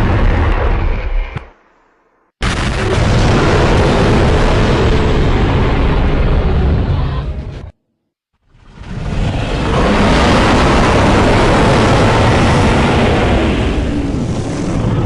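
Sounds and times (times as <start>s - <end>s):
monster roar: 8.6s - 15.0s.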